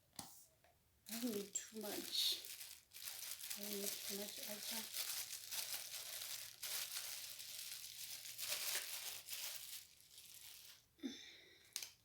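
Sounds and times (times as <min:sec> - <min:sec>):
plastic packaging crackling: 0:01.1 - 0:10.9, 0:11.6 - 0:12.0.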